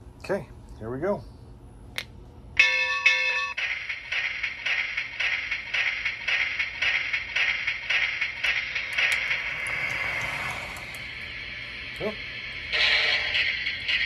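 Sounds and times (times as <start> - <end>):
model locomotive rhythmic hissing: 3.6 - 14.0.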